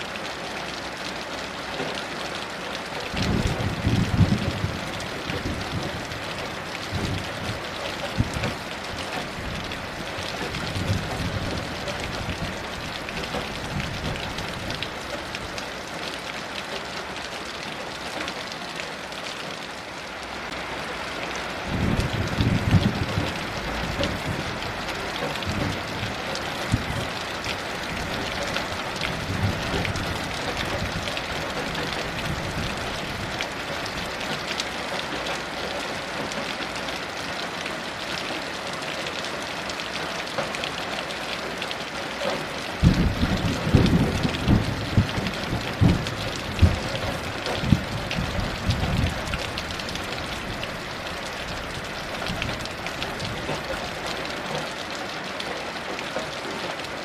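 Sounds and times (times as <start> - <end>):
heavy rain: 0.0 - 57.0
thunder rumbling: 3.2 - 8.6, 21.6 - 34.1, 42.8 - 50.9.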